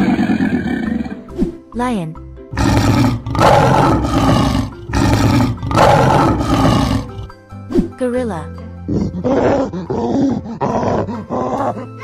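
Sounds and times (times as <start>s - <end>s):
lion roaring: 0.0s - 1.2s, 2.6s - 7.4s, 8.9s - 11.8s.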